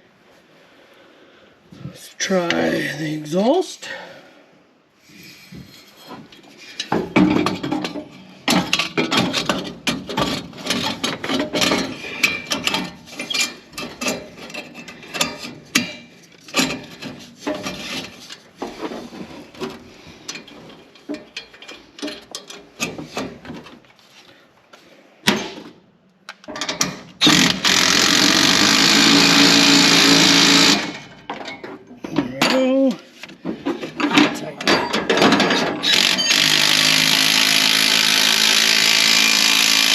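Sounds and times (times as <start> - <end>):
metal parts knocking: 6.8 - 18.2
power tool running: 27.2 - 31.1, 35.8 - 39.9.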